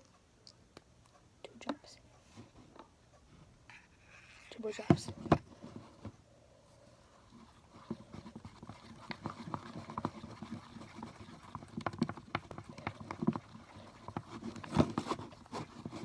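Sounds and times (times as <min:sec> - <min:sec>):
wooden stick scraping a bowl: 0:03.7 - 0:05.0, 0:07.4 - 0:16.0.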